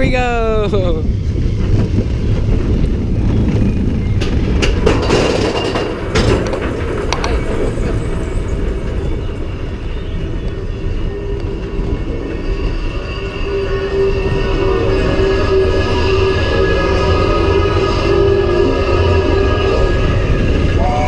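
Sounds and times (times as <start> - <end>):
ride train rumbling on track: 0.0 - 21.0
rattling clacks: 1.5 - 10.6.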